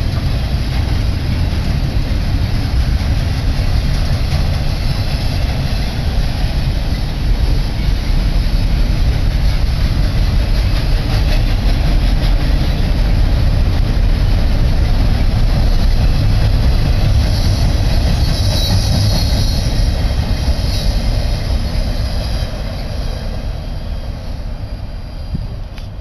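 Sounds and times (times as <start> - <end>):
train wheels rumbling on rail: 0.0 - 26.0
high wheel squeal: 15.7 - 25.6.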